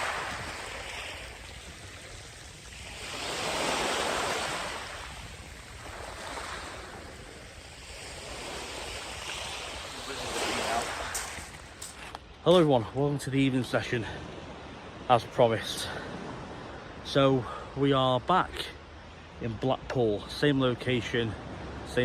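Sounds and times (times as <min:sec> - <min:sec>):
waves washing on sandy beach: 0:00.0 - 0:22.0.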